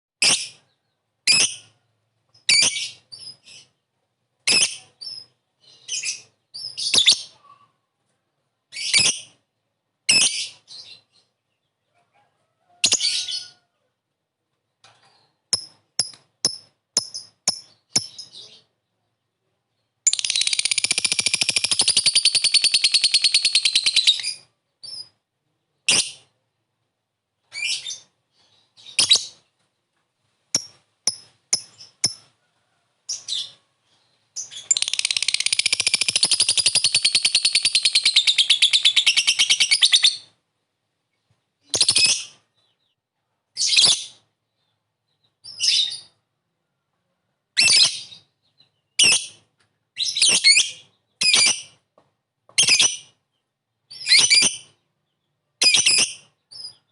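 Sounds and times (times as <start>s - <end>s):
lovebird chirping and chattering: 0.2s - 1.8s, 2.4s - 3.8s, 4.4s - 7.7s, 8.7s - 9.4s, 10.1s - 11.3s, 12.8s - 13.5s, 15.2s - 18.7s, 19.8s - 25.2s, 25.8s - 26.3s, 27.5s - 29.5s, 30.5s - 32.3s, 33.1s - 40.4s, 41.7s - 42.9s, 47.6s - 51.8s, 52.6s - 53.2s, 53.9s - 56.9s.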